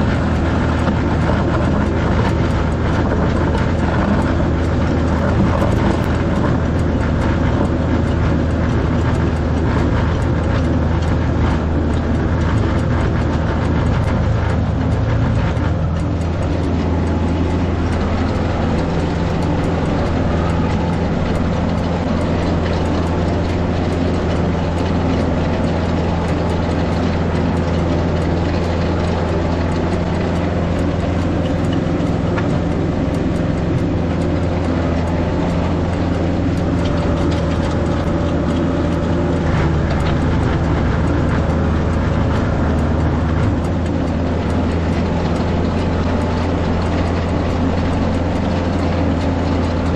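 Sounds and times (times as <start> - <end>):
mechanical rattle: 0.0 - 49.9
tractor diesel engine running: 0.0 - 49.9.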